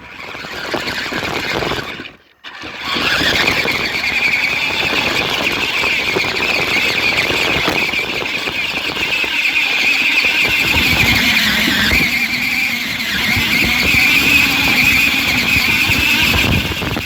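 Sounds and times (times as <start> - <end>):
toy car motor whining: 0.0 - 17.0
wheels rumbling over ground: 8.4 - 17.0.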